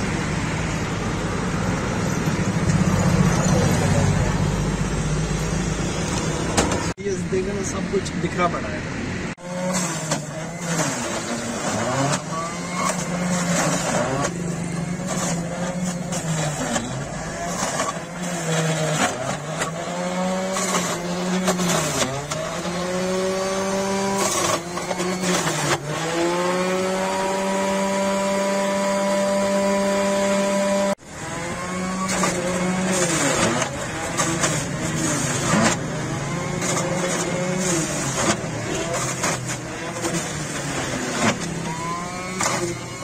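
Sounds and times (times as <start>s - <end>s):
grinding crackles: 0.0s - 43.0s
electric juicer motor humming: 9.4s - 43.0s.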